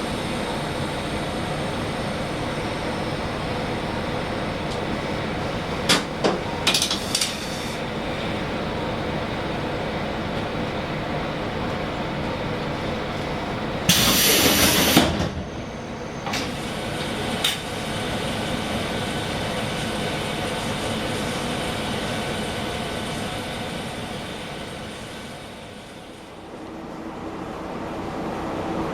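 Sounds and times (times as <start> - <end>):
diesel railcar engine running: 0.0 - 28.9
compressed air hiss: 6.8 - 7.8, 13.9 - 15.2.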